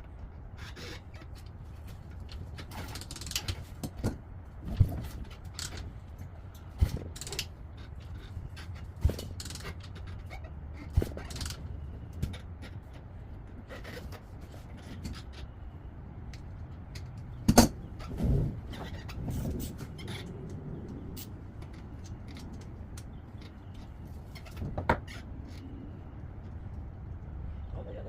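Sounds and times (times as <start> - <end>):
tools clicking and scraping: 5.0 - 15.6.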